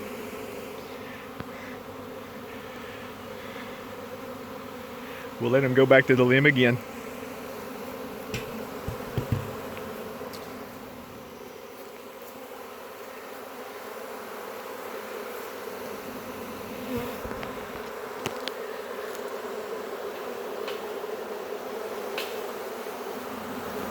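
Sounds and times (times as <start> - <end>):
bees humming in flight: 0.0 - 23.9
faint knocks: 8.3 - 10.0.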